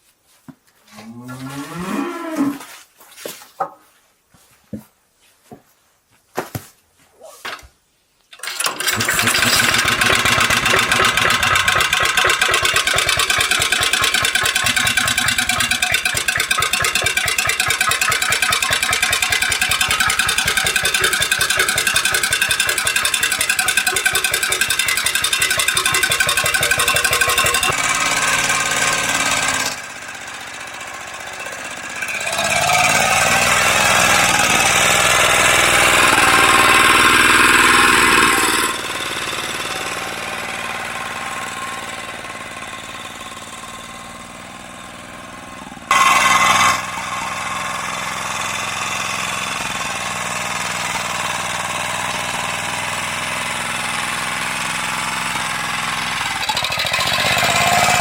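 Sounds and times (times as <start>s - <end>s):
tractor engine running: 8.4s - 58.0s.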